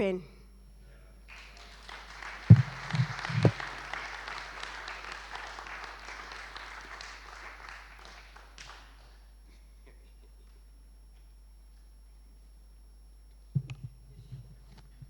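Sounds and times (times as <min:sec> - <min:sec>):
crowd clapping: 0:01.3 - 0:09.4.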